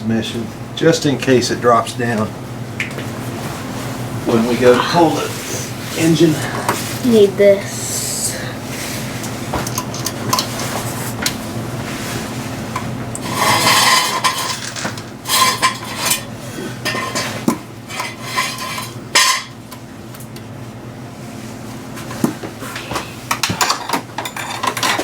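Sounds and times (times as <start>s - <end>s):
steady low hum: 0.0s - 25.0s
metal scrape: 13.2s - 14.6s.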